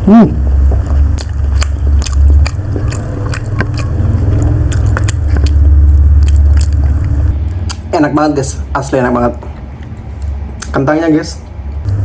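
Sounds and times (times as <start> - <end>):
steady low rumble: 0.0 - 10.7
person chewing food: 0.4 - 7.8
wet mouth clicks and smacks: 0.7 - 7.8.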